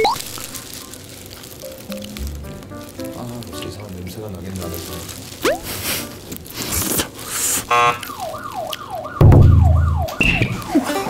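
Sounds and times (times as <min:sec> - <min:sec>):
siren wailing: 0:07.7 - 0:11.0
swooping whistle: 0:09.6 - 0:10.8.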